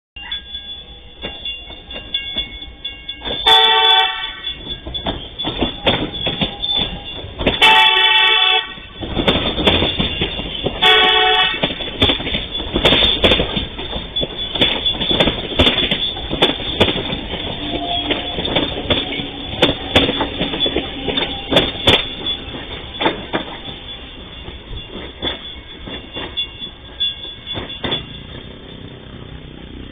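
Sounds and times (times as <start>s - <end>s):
train wheels clattering: 1.2s - 29.9s
train horn: 3.4s - 4.7s, 6.4s - 8.9s, 10.5s - 11.8s, 17.4s - 24.2s.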